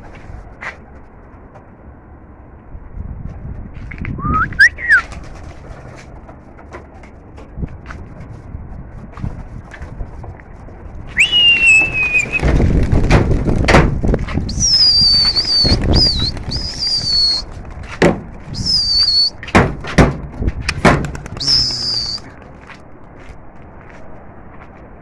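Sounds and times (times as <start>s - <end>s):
person whistling shrilly: 4.2s - 5.0s, 11.2s - 12.4s, 14.5s - 17.4s, 18.6s - 19.3s, 21.4s - 22.2s.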